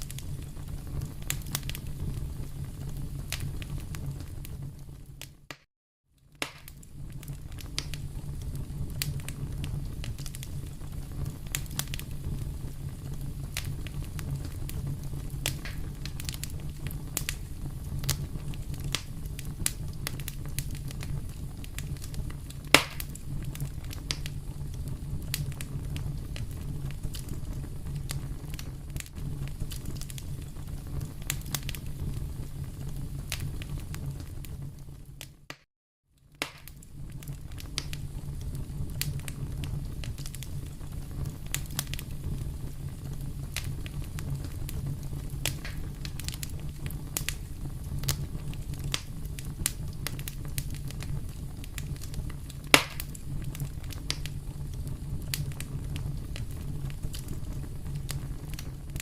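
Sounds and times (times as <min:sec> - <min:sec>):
fire low rumble: 0:00.0 - 0:05.5, 0:06.2 - 0:35.5, 0:36.2 - 0:59.0
wood fire crackling and popping: 0:00.0 - 0:59.0.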